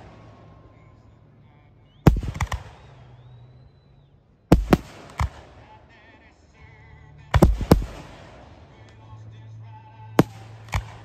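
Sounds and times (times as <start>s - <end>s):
fireworks bursting: 0.0s - 1.1s, 1.9s - 6.3s, 7.3s - 9.2s.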